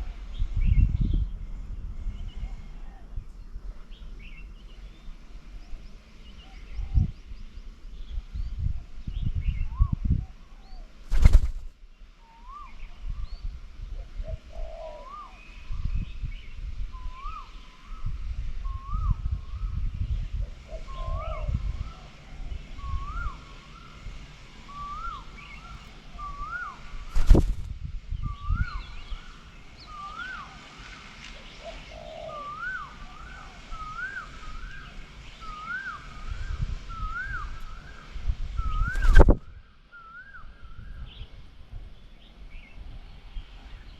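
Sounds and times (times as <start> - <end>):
bird whistled rising calls: 12.2 - 13.5, 14.3 - 19.8, 20.7 - 24.0, 24.6 - 27.6, 28.2 - 30.8, 31.4 - 41.3.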